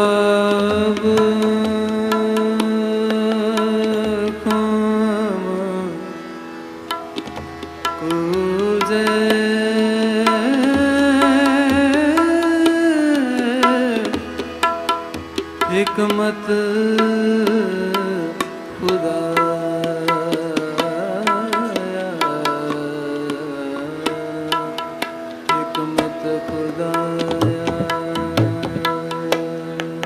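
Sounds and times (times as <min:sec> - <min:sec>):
tabla strokes: 0:00.0 - 0:05.0, 0:06.8 - 0:30.0
person singing long notes: 0:00.0 - 0:06.3, 0:15.6 - 0:30.0
harmonium: 0:00.0 - 0:30.0.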